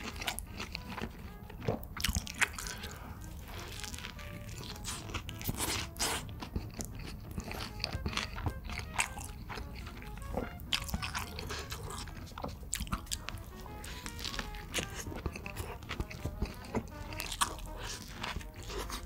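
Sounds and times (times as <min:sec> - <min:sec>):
biting and chewing burger: 0:00.0 - 0:19.0
soft background music: 0:00.0 - 0:19.0.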